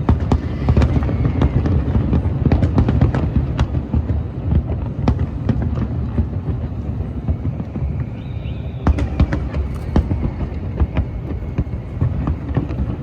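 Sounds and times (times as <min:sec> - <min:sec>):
fireworks popping and cracking: 0:00.0 - 0:08.0, 0:08.8 - 0:13.0
steady low rumble: 0:09.1 - 0:13.0.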